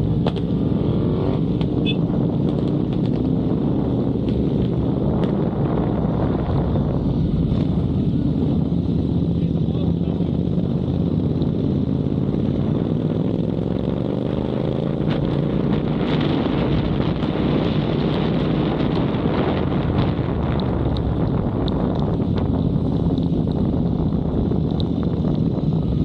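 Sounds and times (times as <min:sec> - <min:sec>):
motorcycle engine running: 0:00.0 - 0:26.0
wind noise on microphone: 0:00.0 - 0:26.0.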